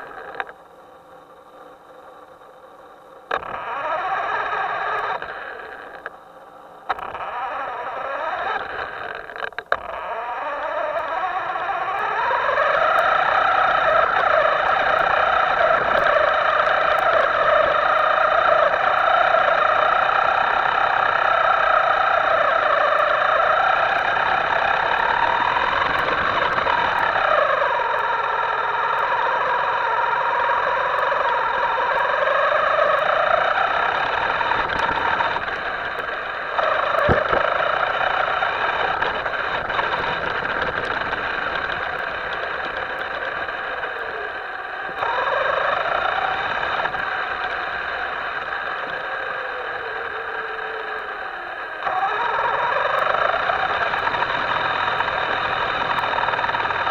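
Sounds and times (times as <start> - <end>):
sharp clicks: 0.0 - 56.9
small electric motor whining: 0.0 - 56.9.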